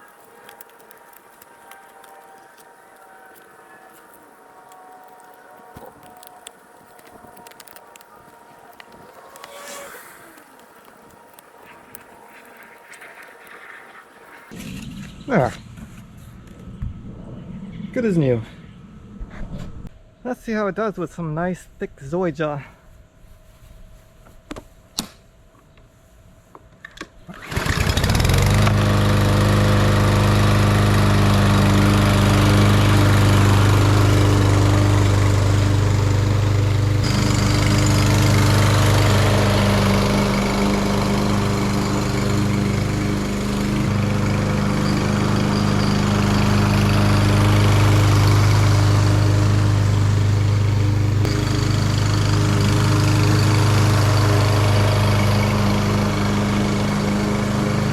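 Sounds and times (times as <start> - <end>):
lawn mower engine running: 27.3 - 57.9.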